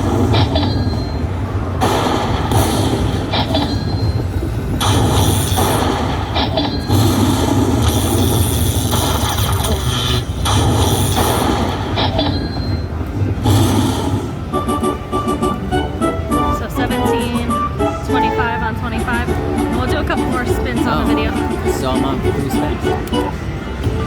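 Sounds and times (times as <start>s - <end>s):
electronic chimes: 0.0s - 1.4s, 2.5s - 7.2s
casino floor din: 7.1s - 24.0s.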